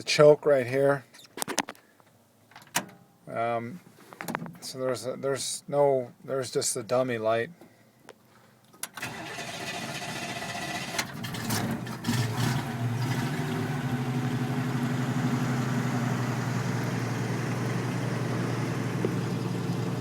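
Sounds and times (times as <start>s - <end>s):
pickup engine starting and idling: 8.8s - 20.0s.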